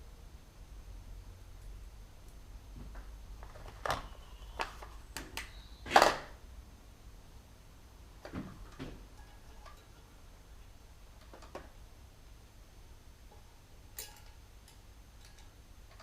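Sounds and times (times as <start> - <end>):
metal tools clinking: 9.1 - 10.0, 13.9 - 16.0.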